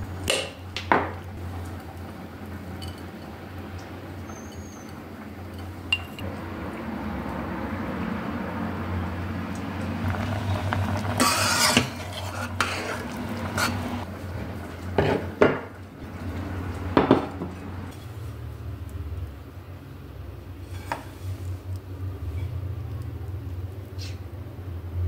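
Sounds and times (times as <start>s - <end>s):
utensils clattering against dishes: 4.1s - 6.2s.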